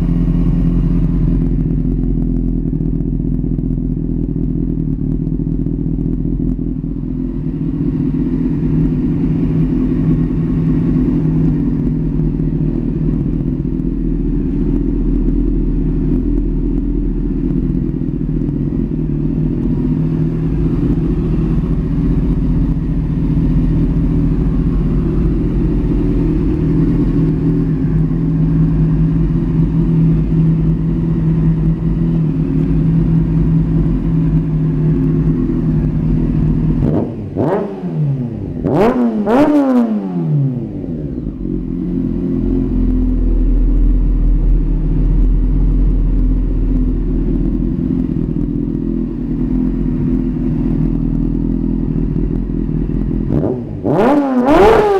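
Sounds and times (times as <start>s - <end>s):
motorcycle engine idling and revving: 0.0s - 54.9s.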